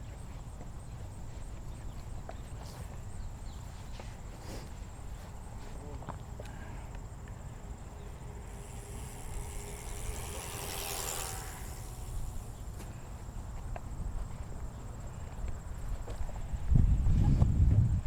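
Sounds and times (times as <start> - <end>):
high-pitched whine: 7.4 - 13.4.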